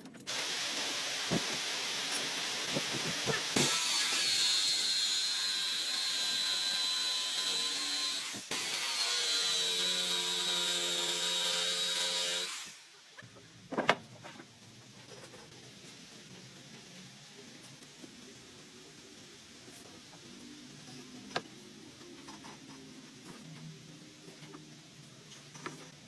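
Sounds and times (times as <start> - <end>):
power tool whining: 0.3 - 12.8.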